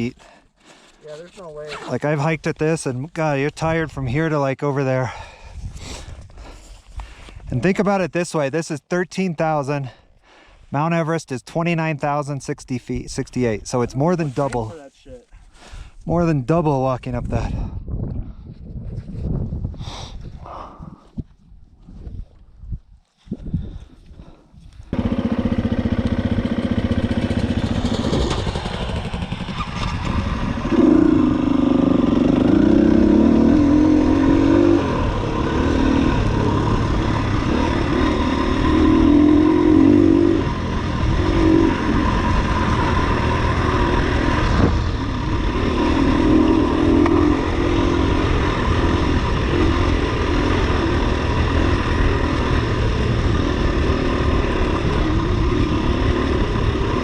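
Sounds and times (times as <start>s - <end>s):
dirt bike engine revving: 24.9s - 57.0s.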